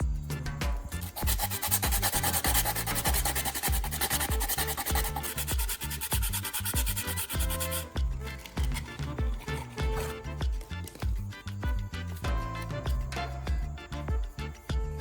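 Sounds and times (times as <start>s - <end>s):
background music with steady beat: 0.0s - 15.0s
rapid abrasive sanding: 0.9s - 11.4s.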